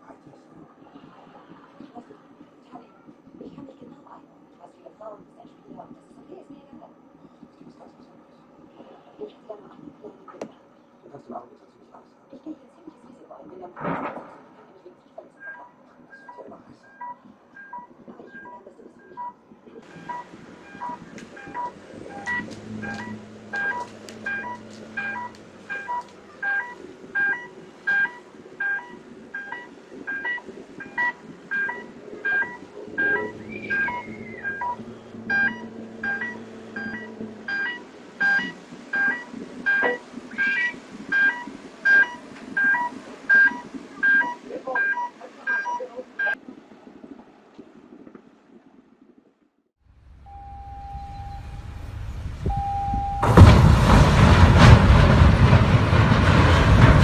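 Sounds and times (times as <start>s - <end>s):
steady noisy background: 0.0s - 49.1s
two-pitch electronic alarm beeping: 19.9s - 46.4s.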